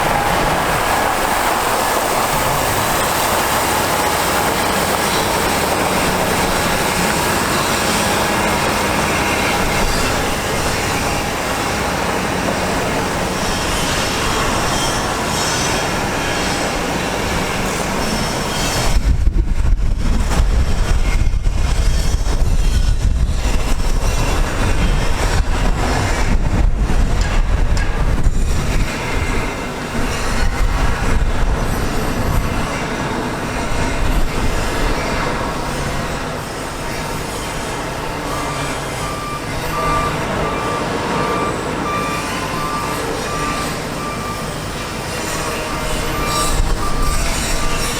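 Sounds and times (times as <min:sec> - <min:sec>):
loud rushing hiss: 0:00.0 - 0:18.5
diesel truck engine rumble: 0:00.0 - 0:47.9.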